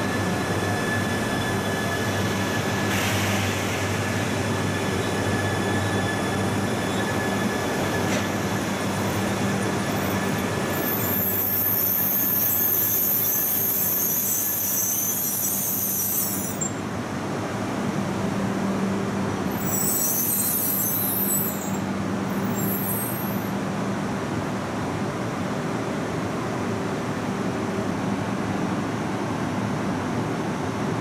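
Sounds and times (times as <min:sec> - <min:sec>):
high-pitched wheel squeal: 0:04.6 - 0:16.8, 0:19.5 - 0:23.6.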